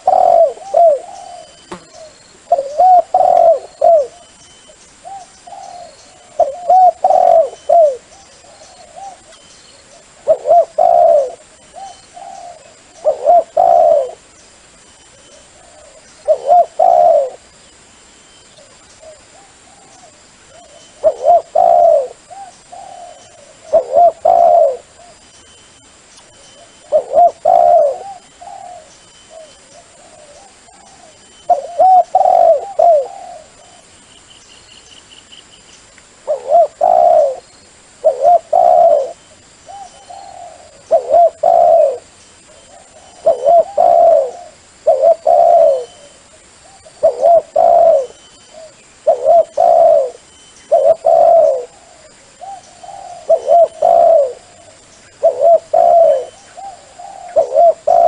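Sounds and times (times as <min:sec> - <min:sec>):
dove cooing: 0:00.0 - 0:04.4, 0:05.0 - 0:14.3, 0:15.1 - 0:17.5, 0:18.6 - 0:25.2, 0:26.6 - 0:33.9, 0:36.2 - 0:58.0.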